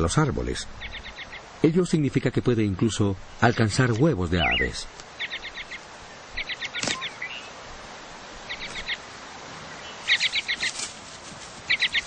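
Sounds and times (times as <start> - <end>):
songbird trilling: 0.7 - 1.5, 3.3 - 7.6, 8.4 - 9.0, 9.7 - 10.9, 11.6 - 12.0.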